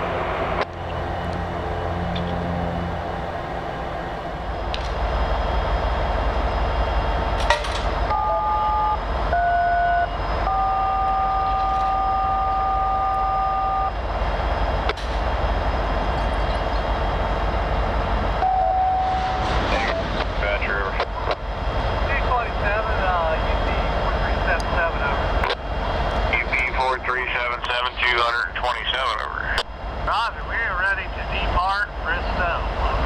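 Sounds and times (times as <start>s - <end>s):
idling diesel locomotives rumble: 0.0s - 33.0s.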